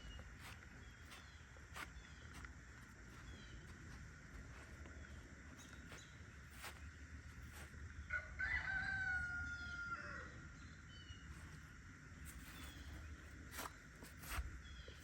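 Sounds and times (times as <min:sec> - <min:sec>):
faint rooster crowing: 0:08.0 - 0:10.6.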